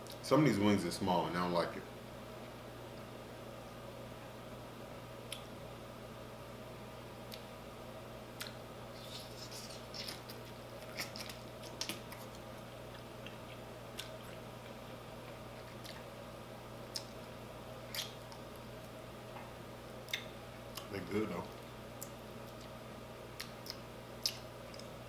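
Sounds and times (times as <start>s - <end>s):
person eating with mouth sounds: 8.4s - 12.4s.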